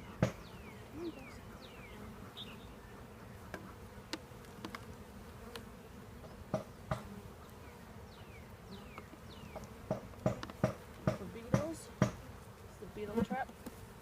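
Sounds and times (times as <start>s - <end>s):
honeybees buzzing: 0.0s - 14.0s
sharp knocks: 0.2s - 0.5s, 9.9s - 12.2s.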